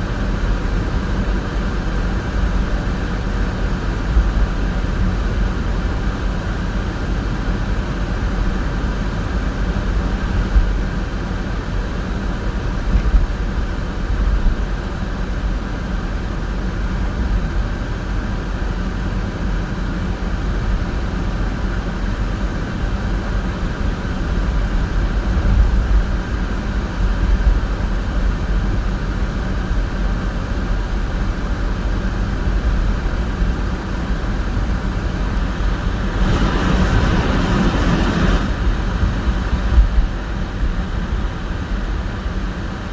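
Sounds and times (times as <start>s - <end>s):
car road and engine rumble: 0.0s - 42.9s.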